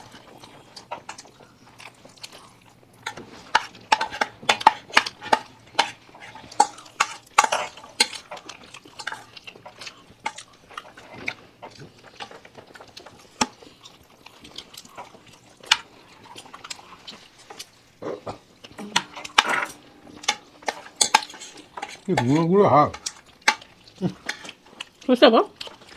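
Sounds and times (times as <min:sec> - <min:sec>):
chewing food: 0:00.0 - 0:25.9
spoons scraping against plates: 0:03.1 - 0:13.7, 0:14.9 - 0:25.0.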